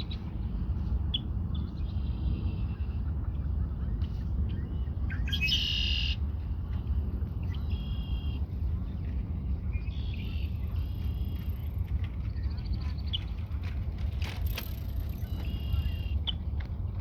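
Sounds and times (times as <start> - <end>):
steady low rumble: 0.0 - 17.0
blackbird singing: 4.5 - 6.2.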